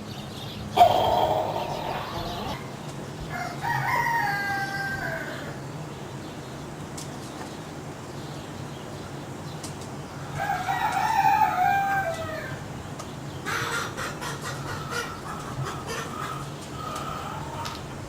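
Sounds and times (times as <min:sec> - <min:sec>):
chickens clucking: 0:00.6 - 0:05.7, 0:10.2 - 0:18.0
rooster crowing: 0:00.8 - 0:05.6, 0:10.3 - 0:12.7, 0:15.8 - 0:17.8.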